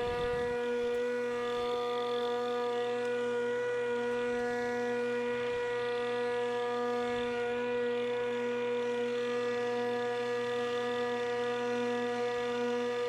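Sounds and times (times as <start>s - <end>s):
electric lawnmower motor whine: 0.0s - 13.0s.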